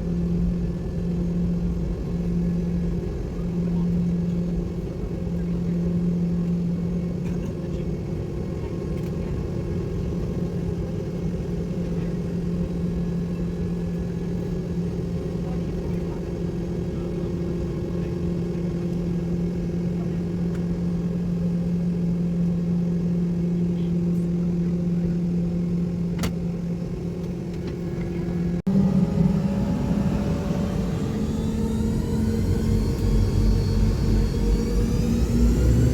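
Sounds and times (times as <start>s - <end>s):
rising engine whine: 0.0s - 7.2s, 26.9s - 35.9s
airliner engines droning: 0.0s - 35.9s.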